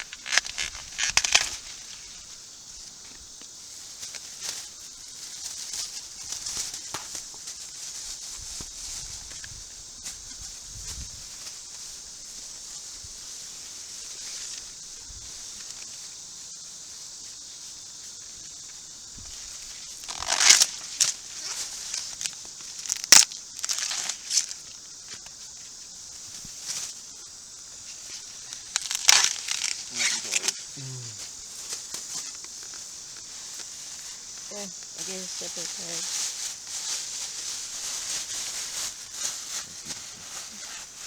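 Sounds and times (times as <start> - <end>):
corn ear snapping: 0.0 - 1.7, 20.0 - 24.6, 28.5 - 30.6
corn leaves rustling: 0.0 - 41.0
steady high hiss: 0.0 - 41.0.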